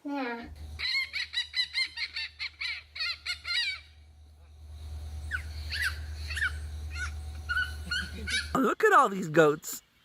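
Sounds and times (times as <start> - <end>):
chickens squawking: 0.7 - 4.0, 5.2 - 8.6.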